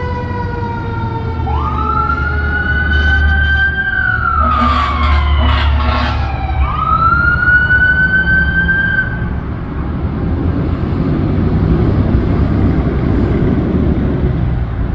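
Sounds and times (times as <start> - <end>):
fire engine siren wailing: 0.0 - 10.1
truck engine and road rumble: 0.0 - 14.9
short horn blasts: 2.8 - 6.4.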